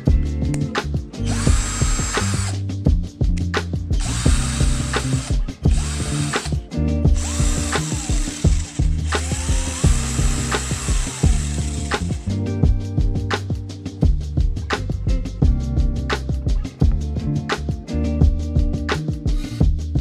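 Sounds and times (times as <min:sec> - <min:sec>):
background music: 0:00.0 - 0:20.0
cordless drill motor whine: 0:01.2 - 0:02.5, 0:04.0 - 0:06.5, 0:07.1 - 0:12.2.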